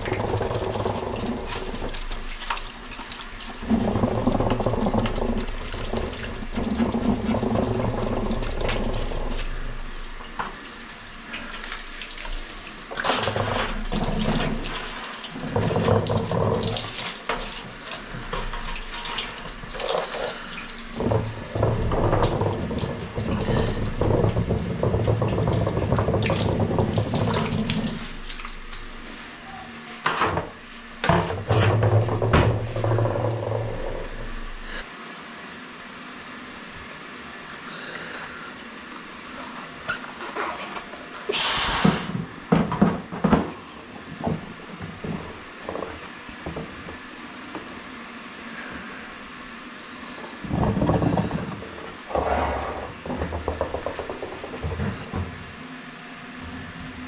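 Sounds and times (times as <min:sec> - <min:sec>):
running water splashing: 0:00.0 - 0:30.0
knocks and clatter: 0:30.0 - 0:34.6, 0:52.9 - 0:55.6.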